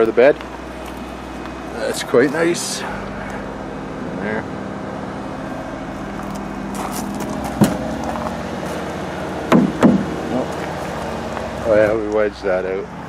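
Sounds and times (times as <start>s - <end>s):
motor hum: 0.0s - 13.0s
sharp knocks: 7.4s - 8.1s, 9.5s - 10.4s.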